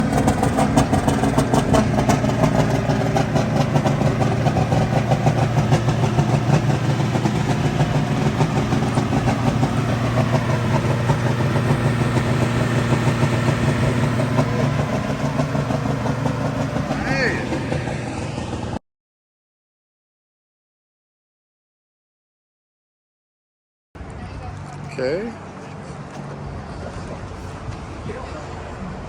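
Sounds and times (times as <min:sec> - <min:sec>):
vehicle engine droning: 0:00.0 - 0:18.8.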